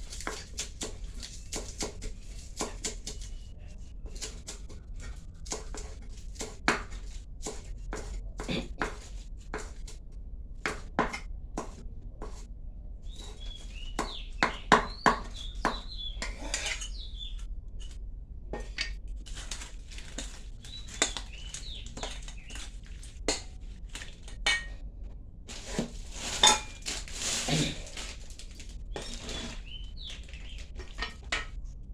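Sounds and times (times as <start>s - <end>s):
birds chirping: 13.1s - 17.4s, 20.6s - 22.6s, 28.9s - 31.2s
utensils clinking against dishes: 23.4s - 24.8s, 25.6s - 28.2s, 29.0s - 31.6s.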